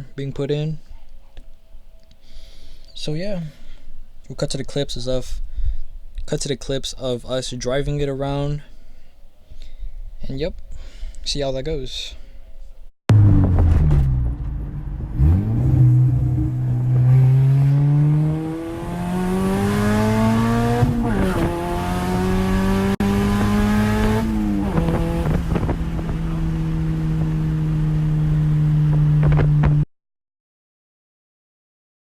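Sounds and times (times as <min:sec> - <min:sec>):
car engine accelerating: 0:13.1 - 0:29.8.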